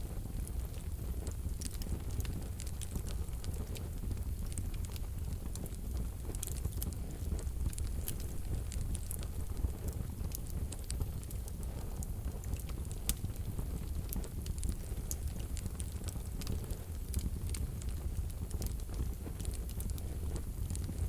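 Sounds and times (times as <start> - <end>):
fire crackling and popping: 0.0 - 21.0
low rumble of flames: 0.0 - 21.0.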